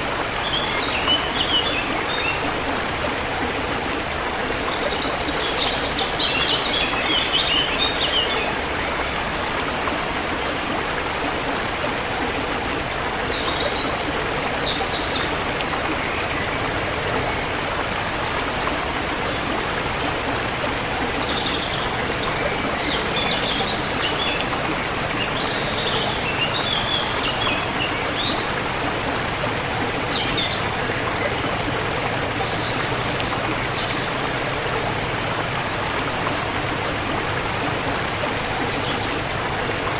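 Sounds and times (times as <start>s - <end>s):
forest stream rushing: 0.0s - 39.9s
songbirds chirping: 0.0s - 39.9s.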